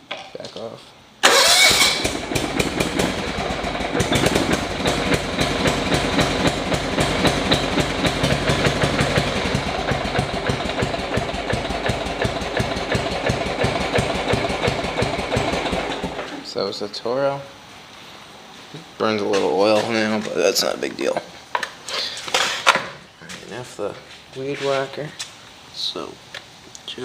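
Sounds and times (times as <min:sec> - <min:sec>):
small gasoline engine running: 0:01.2 - 0:16.3.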